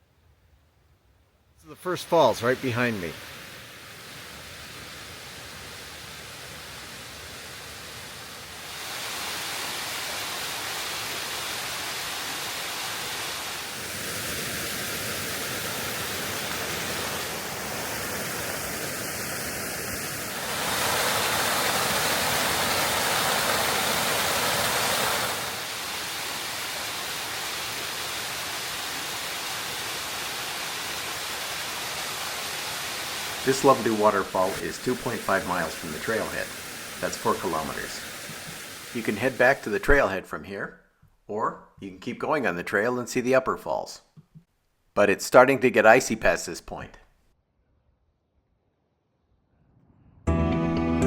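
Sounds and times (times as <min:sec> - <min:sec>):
waterfall rushing: 0:01.7 - 0:40.0.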